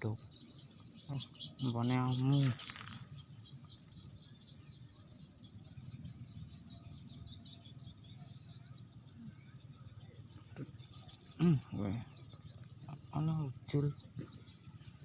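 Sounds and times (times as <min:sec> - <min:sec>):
crickets trilling: 0:00.0 - 0:15.0
short human vocal sound: 0:11.4 - 0:11.7.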